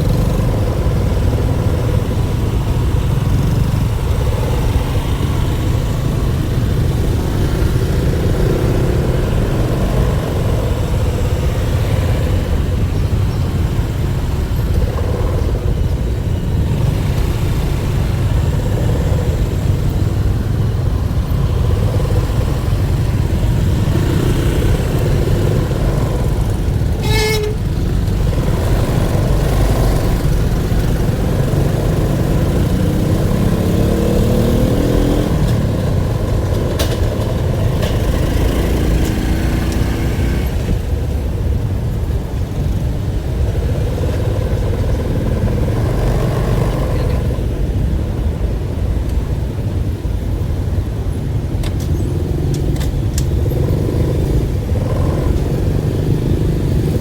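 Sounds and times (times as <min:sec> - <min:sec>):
road traffic rumble: 0:00.0 - 0:57.0
car horn toot: 0:27.0 - 0:27.8.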